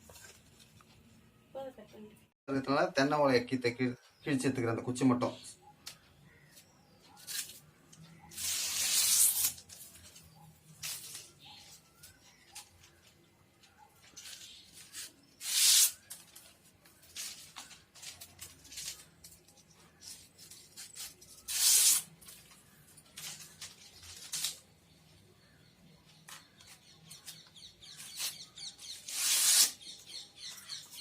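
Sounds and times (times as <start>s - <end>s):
palm leaves ripping: 8.4s - 10.0s, 23.2s - 24.6s, 29.0s - 29.8s.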